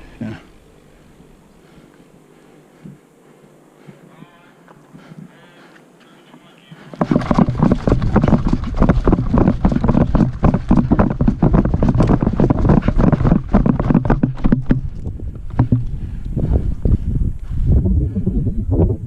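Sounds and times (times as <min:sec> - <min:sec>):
rapid irregular thudding: 0:06.8 - 0:17.0
wind on microphone: 0:07.0 - 0:19.0
low rumble: 0:07.3 - 0:19.0.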